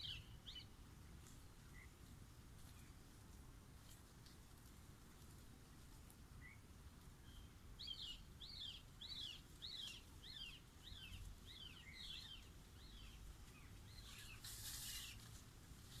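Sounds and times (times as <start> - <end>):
hissing rustle: 13.4 - 16.0.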